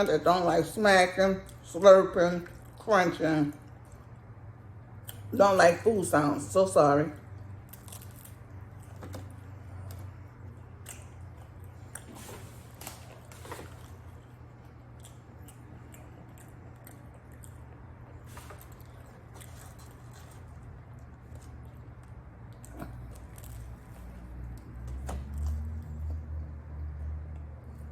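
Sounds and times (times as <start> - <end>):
low steady hum: 0.0 - 27.9
person chewing: 7.3 - 24.2.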